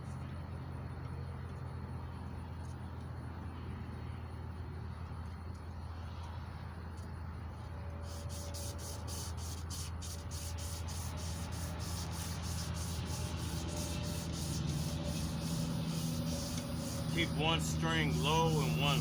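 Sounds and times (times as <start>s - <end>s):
emery cloth rubbing metal: 8.0s - 19.0s.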